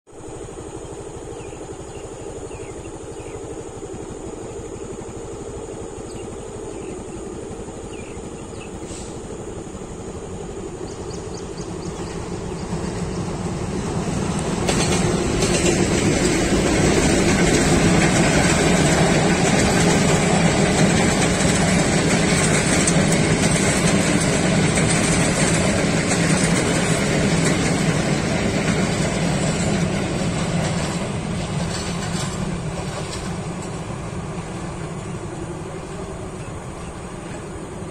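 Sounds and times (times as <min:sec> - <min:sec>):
diesel locomotive engine drone: 0:00.1 - 0:37.9
train wheels clattering on rails: 0:10.1 - 0:37.9.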